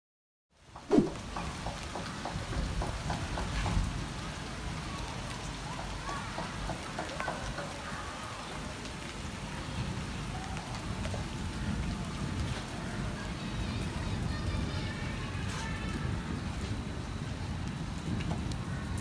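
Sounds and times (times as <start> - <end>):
heavy rain falling: 0.6 - 19.0.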